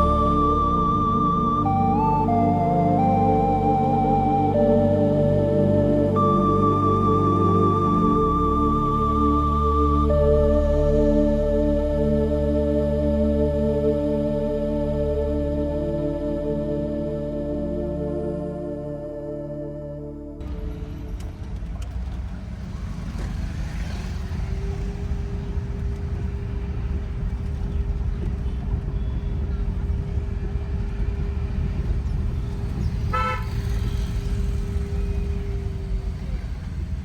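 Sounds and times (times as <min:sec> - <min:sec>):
car engine and road noise: 0:00.0 - 0:17.4, 0:20.4 - 0:37.0
car horn toot: 0:32.9 - 0:35.2.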